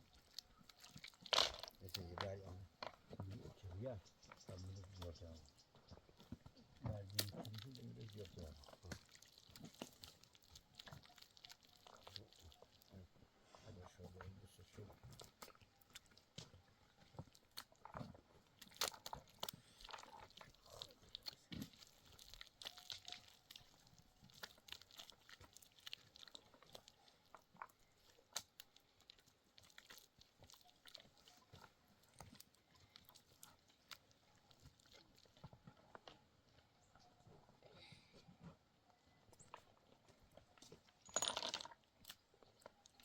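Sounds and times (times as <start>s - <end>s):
small clicks and crunches: 0.0s - 3.6s, 6.2s - 13.0s, 14.7s - 36.2s.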